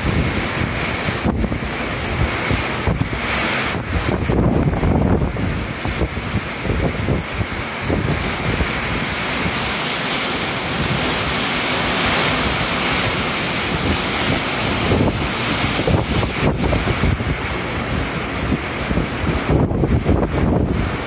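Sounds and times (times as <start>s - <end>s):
heavy wind-driven rain: 0.0s - 21.0s
strong storm wind: 0.0s - 21.0s
wind buffeting microphone: 0.0s - 21.0s.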